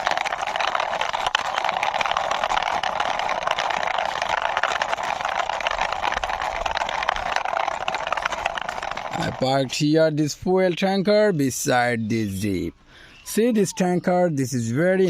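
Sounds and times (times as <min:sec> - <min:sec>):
toy wheels rolling: 0:00.0 - 0:09.8.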